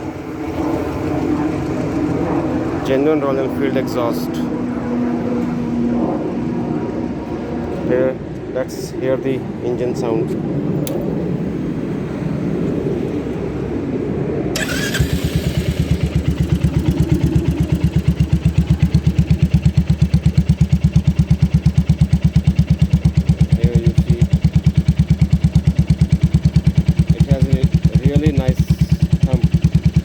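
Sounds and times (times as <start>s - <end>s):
motorcycle engine starting and idling: 14.5s - 30.0s.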